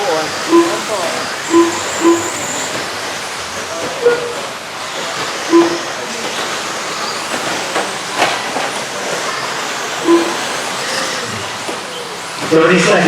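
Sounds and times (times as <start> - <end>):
rc cars motors whirring: 0.0 - 13.0
short electronic tones: 0.5 - 2.8, 5.5 - 6.0, 10.0 - 11.4.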